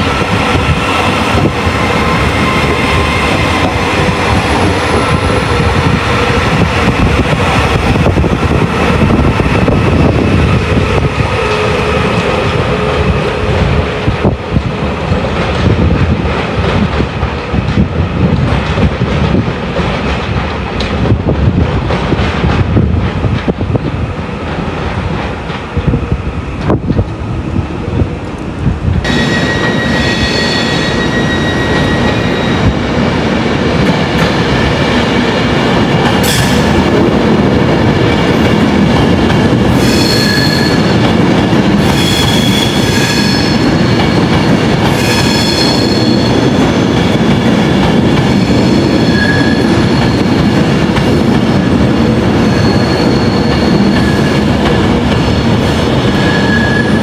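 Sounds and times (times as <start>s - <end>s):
train rumbling on track: 0.0s - 57.0s
steel wheels squealing: 29.1s - 32.7s, 39.8s - 41.0s, 41.8s - 44.3s, 44.9s - 46.4s, 48.3s - 50.5s, 52.4s - 54.4s, 56.2s - 57.0s.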